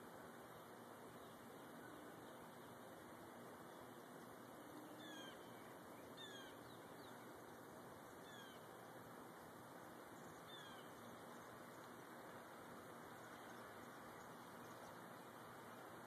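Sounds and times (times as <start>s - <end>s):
steady hiss: 0.0s - 16.0s
bird calling faintly: 3.6s - 8.9s, 9.8s - 12.1s.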